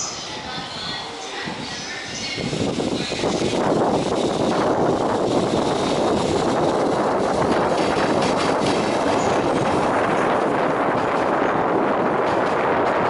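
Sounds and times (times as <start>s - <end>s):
train wheels rumbling on rails: 0.3s - 13.0s
wheel clacks over rail joints: 7.4s - 11.5s.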